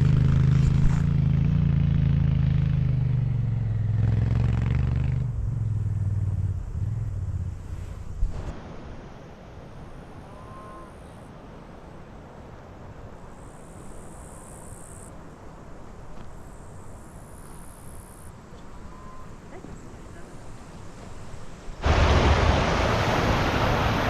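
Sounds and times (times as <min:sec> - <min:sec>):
insects chirring: 0:13.3 - 0:15.2, 0:16.1 - 0:19.4.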